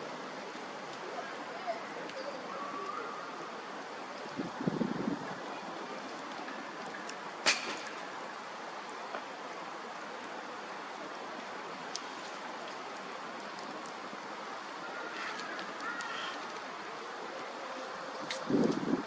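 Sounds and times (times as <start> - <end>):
bonfire crackling: 3.3 - 4.6, 5.2 - 19.0.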